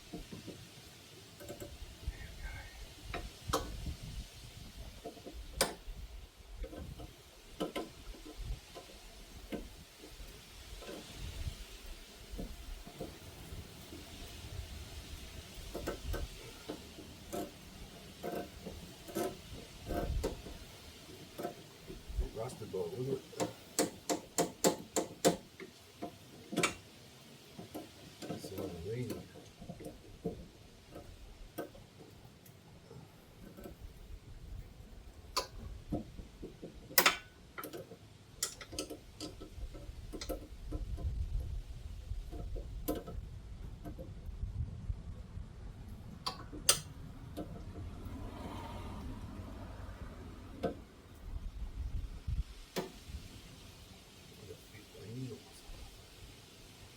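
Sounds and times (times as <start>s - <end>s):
hand tools clicking on metal: 5.0s - 5.8s, 15.5s - 26.8s, 35.3s - 41.0s, 46.2s - 47.6s
metallic clicks of hand tools: 23.4s - 26.8s, 36.9s - 39.5s, 46.2s - 47.6s.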